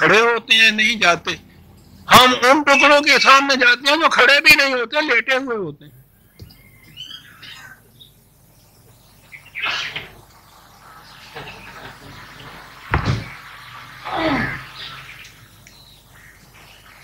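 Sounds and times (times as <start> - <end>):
bird chirps and calls: 6.2 - 17.0
sharp knock: 12.9 - 13.4.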